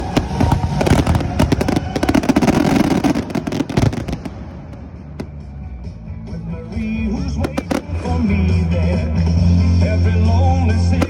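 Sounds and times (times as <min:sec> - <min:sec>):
fireworks bangs and crackles: 0:00.0 - 0:06.0, 0:07.1 - 0:09.4.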